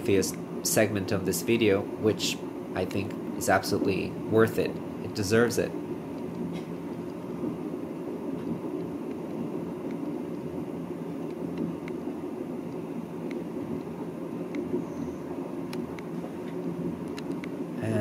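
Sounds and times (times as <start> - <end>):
faint clicks and rattles: 8.3 - 17.6.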